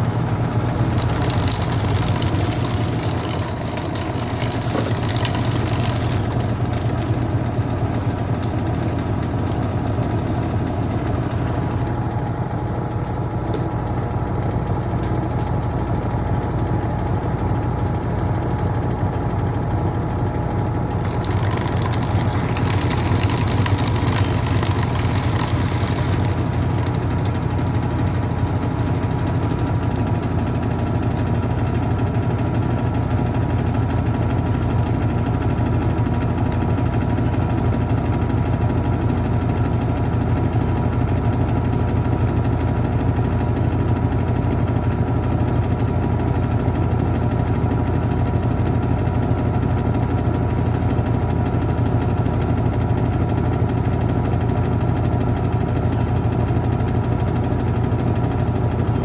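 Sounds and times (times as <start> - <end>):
washing machine humming: 0.0 - 38.6.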